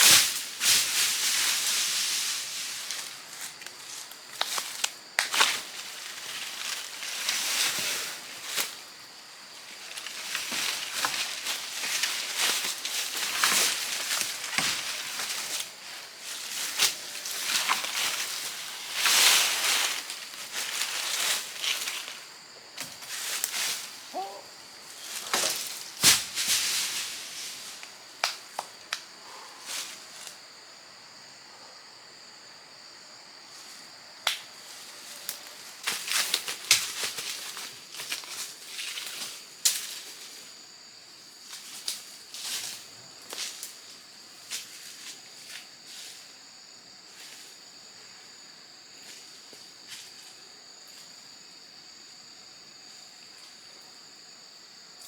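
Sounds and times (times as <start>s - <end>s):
leaves and brush rustling: 0.0s - 31.4s, 32.2s - 55.0s
high insect drone: 0.0s - 55.0s
sharp snaps and knocks: 3.6s - 5.6s, 25.2s - 26.6s, 27.8s - 29.1s, 34.2s - 34.5s, 35.3s - 37.4s.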